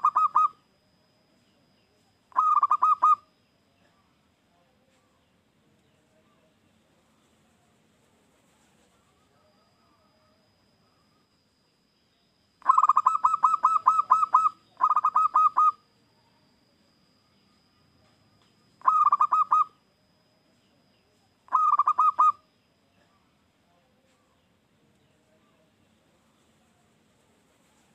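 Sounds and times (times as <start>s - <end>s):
dove cooing: 0.0s - 0.6s, 2.3s - 3.3s, 12.6s - 15.8s, 18.8s - 19.8s, 21.5s - 22.4s.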